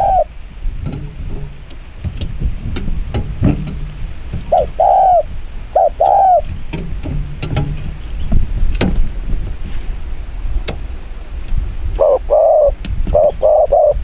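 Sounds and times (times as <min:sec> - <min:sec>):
dove cooing: 0:00.0 - 0:00.4, 0:03.1 - 0:06.6, 0:12.0 - 0:14.0.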